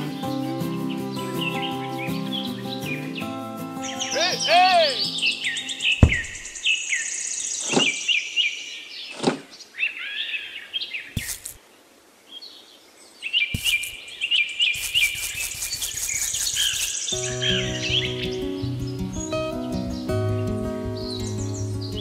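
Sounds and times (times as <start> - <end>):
birds chirping: 0.0 - 22.0
small pieces knocking on board: 11.2 - 11.6, 13.6 - 14.0.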